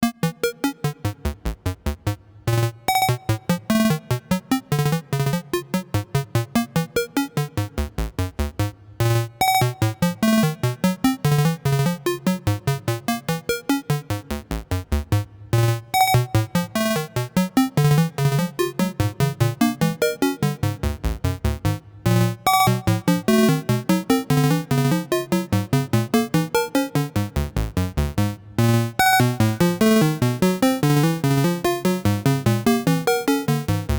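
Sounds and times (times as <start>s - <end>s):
synthesizer plucky sequenced notes: 22.1s - 27.7s, 28.6s - 33.9s.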